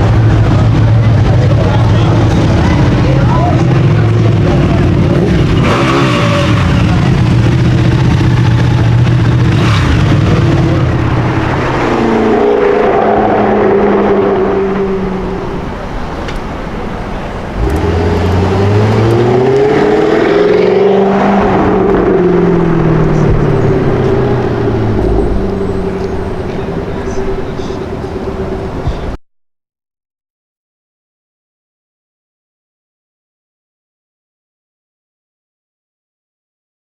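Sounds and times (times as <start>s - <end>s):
car engine revving: 0.0s - 29.2s.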